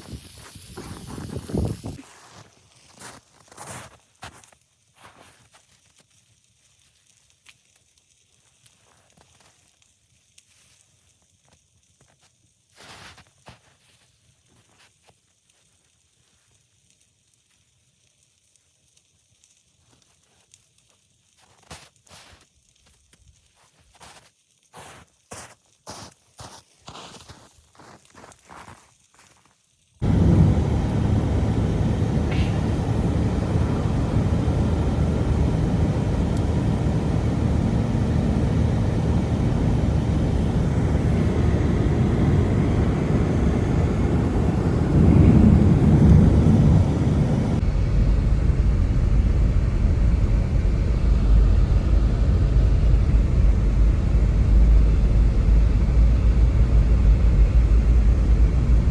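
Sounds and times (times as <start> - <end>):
blizzard wind roaring: 30.0 - 58.9.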